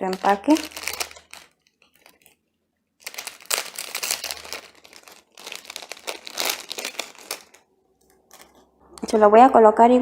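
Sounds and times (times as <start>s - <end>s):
packaging crumpling: 0.0s - 2.4s, 3.0s - 8.6s.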